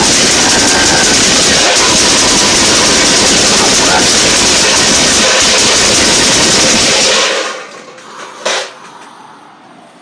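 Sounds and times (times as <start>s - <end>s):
explosion blast: 0.0s - 7.6s
sharp crack: 0.0s - 9.1s.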